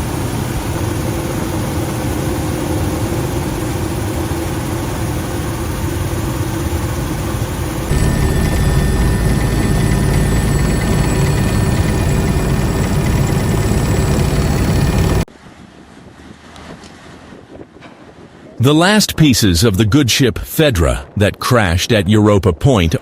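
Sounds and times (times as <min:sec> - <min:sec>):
helicopter rotor and engine: 0:00.0 - 0:15.3.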